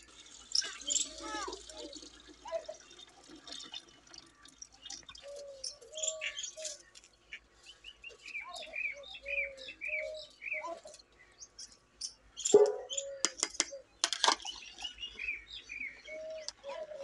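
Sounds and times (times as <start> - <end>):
birds chirping: 0.0 - 17.0
low arching bird calls: 4.4 - 17.0.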